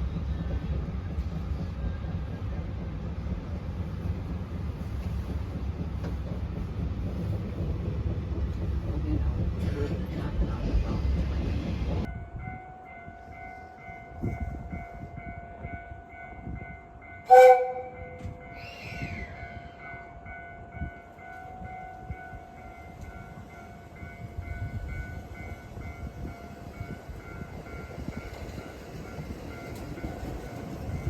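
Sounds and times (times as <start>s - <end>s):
electric train whine: 10.6s - 31.0s
train horn: 17.2s - 18.8s.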